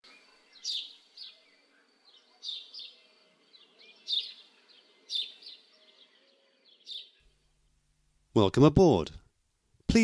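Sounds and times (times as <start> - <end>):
small birds chirping: 0.0 - 7.8
faint background noise: 0.0 - 10.0.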